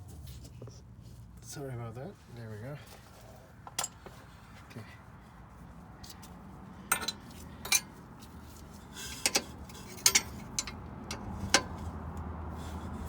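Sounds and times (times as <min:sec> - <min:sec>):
metal hand tools clinking: 0:06.9 - 0:08.0, 0:09.2 - 0:11.6.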